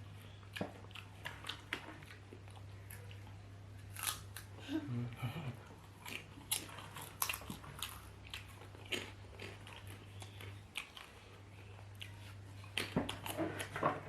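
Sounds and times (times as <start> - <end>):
potatoes being chewed: 0.0 - 14.0.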